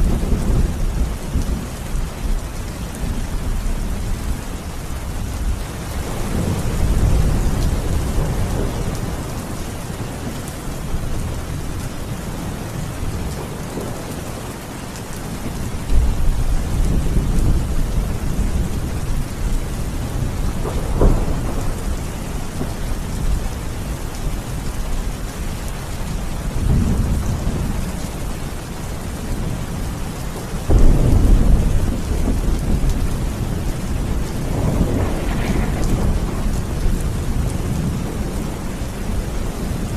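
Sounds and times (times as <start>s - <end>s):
steady rain: 0.0s - 39.9s
rolling thunder: 5.2s - 12.2s, 15.9s - 25.2s, 30.6s - 39.9s.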